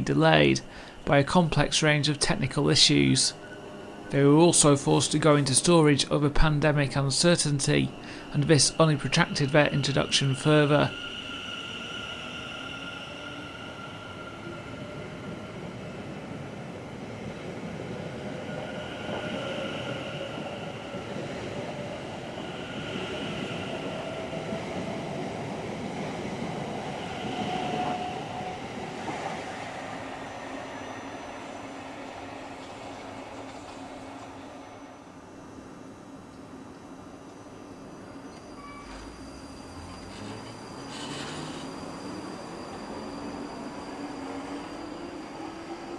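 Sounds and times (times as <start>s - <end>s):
train rumbling past: 0.0s - 45.9s
traction motor whine: 37.5s - 45.4s.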